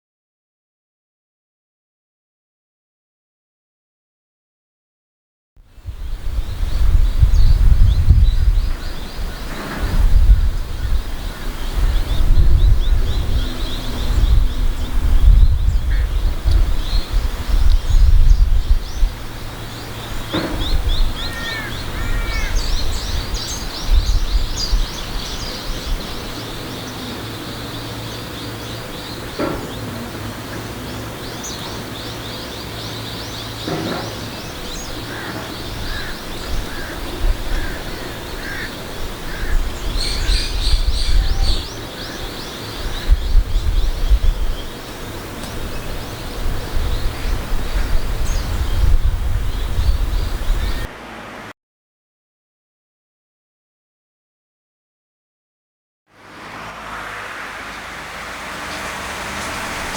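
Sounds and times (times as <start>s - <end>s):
wind rumble on microphone: 5.6s - 51.5s, 56.2s - 59.9s
small birds chirping: 5.8s - 50.9s
crow cawing: 21.3s - 22.7s, 35.1s - 39.6s.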